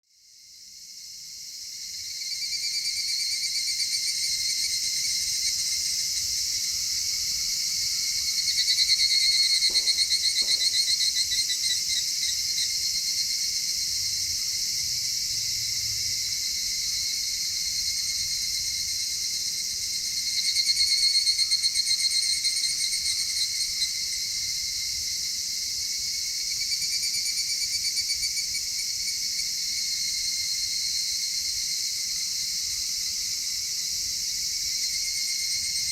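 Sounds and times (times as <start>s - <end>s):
insects chirring: 0.2s - 35.9s
fast pulsing insect trill: 1.8s - 14.5s.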